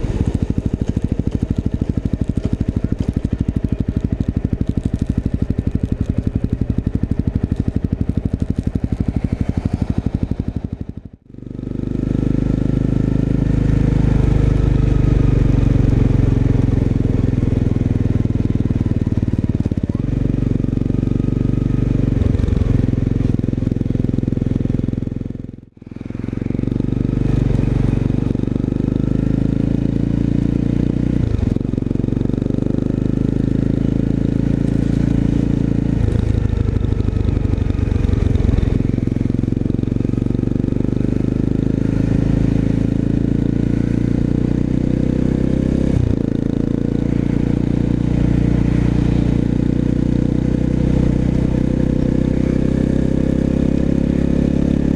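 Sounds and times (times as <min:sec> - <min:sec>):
motorcycle exhaust note with gear shifts: 0:00.0 - 0:54.9.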